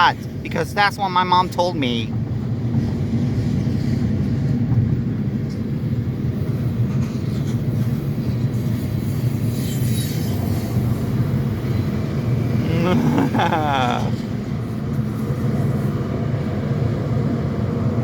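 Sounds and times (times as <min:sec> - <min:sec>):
train wheels rumbling on rails: 0:02.0 - 0:12.2.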